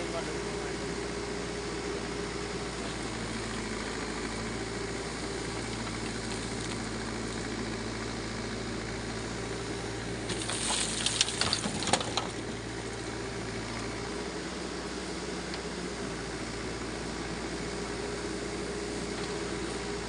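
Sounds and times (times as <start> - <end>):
diesel engine running: 0.0 - 20.0
sharp knocks and scraping: 10.3 - 12.4.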